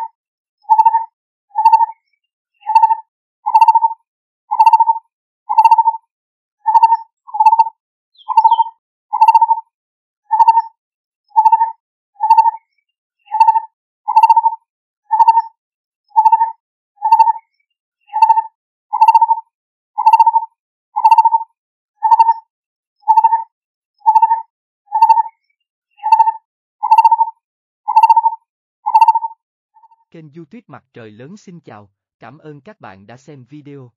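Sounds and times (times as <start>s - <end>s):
faint high bird chirp: 0.0s - 6.0s, 6.6s - 9.6s, 10.2s - 19.4s, 20.0s - 30.1s
barbet calling low notes: 2.6s - 3.9s, 4.5s - 5.9s, 8.2s - 9.5s, 13.3s - 14.5s, 27.9s - 28.3s.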